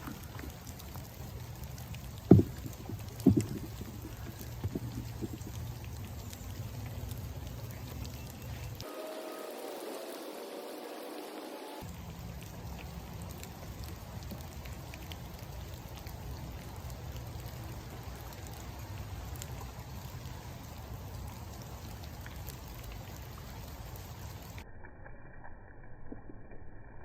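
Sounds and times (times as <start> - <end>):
single raindrop ticks: 0.0 - 8.9, 11.8 - 24.6
steady rain hiss: 0.0 - 24.6
dull noise: 2.0 - 7.6
low rumble: 2.1 - 8.2.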